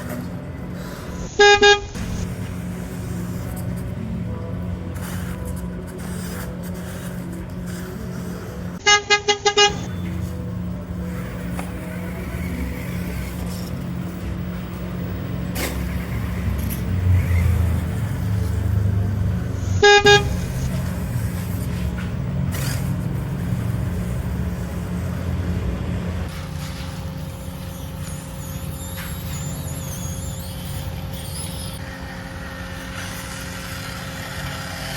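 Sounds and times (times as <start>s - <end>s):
steady low hum: 0.0s - 34.9s
short horn beeps: 1.2s - 2.2s, 8.8s - 10.3s, 19.6s - 20.8s.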